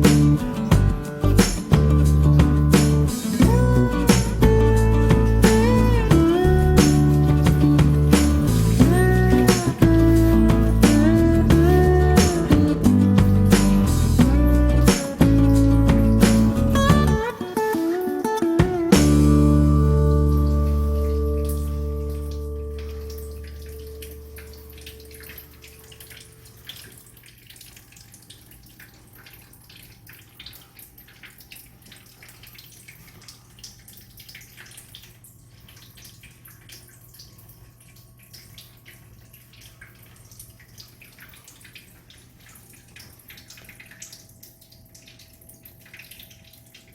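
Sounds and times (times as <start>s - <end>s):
water drips and splashes: 0.0s - 46.9s
low steady hum: 19.1s - 46.9s.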